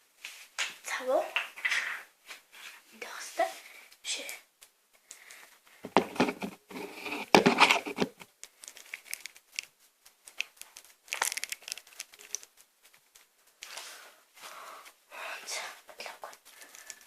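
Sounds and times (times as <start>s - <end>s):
plastic crinkling and rustling: 4.6s - 15.0s, 16.1s - 17.0s.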